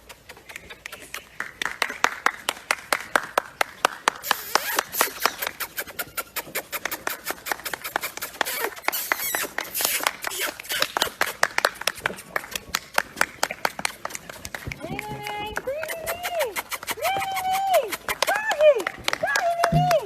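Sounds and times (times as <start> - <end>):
rapid sharp taps: 4.0 - 20.0.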